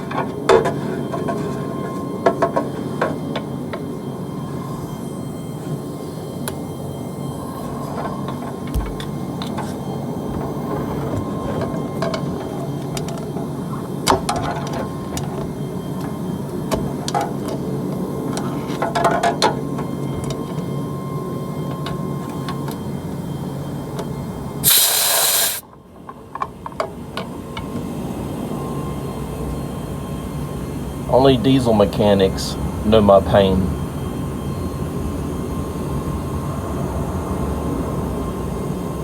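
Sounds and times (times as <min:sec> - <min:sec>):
compressed air hissing: 0:24.6 - 0:25.6.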